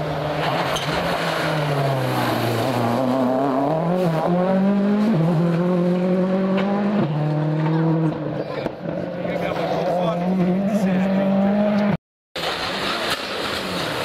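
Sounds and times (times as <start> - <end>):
rally car engine under load: 0.0 - 14.0.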